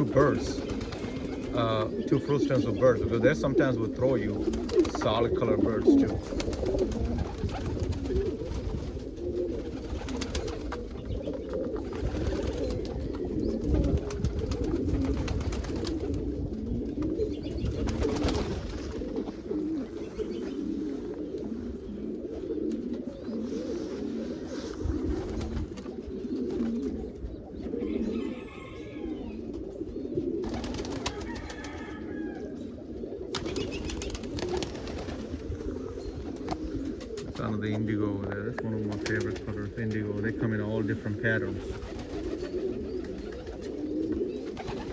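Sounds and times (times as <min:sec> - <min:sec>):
pigeons cooing: 0:00.0 - 0:44.9.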